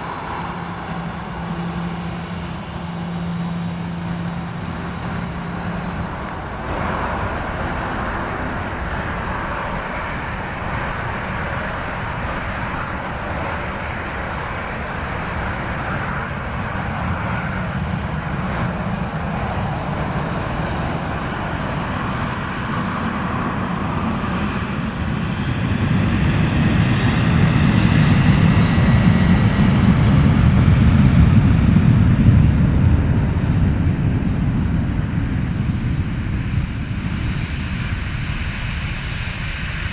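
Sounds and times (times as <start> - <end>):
jet engines spooling up: 0.0 - 31.7.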